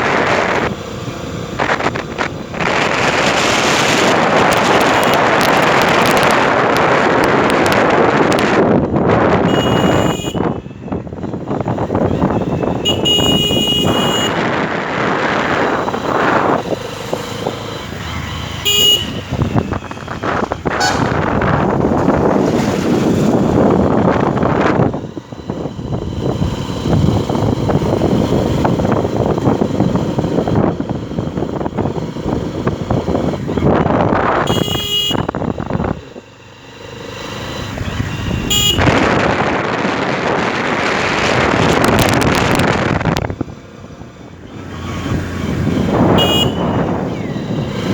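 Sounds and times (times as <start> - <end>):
wind and road noise: 0.0 - 47.9
vehicle horns blasting: 3.5 - 6.0, 9.2 - 11.0, 11.9 - 16.8, 17.8 - 21.7, 33.5 - 35.8, 37.9 - 39.4, 45.8 - 47.8.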